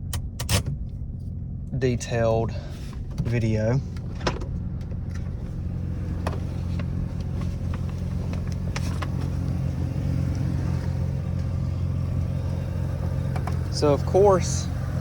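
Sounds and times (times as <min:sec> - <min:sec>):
rotary engine idling: 0:00.0 - 0:15.0.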